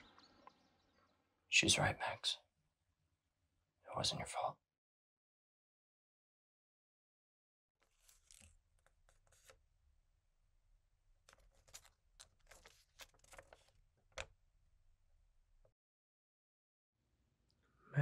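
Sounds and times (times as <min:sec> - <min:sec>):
paper rustling and crinkling: 0:07.8 - 0:09.6, 0:11.2 - 0:14.3.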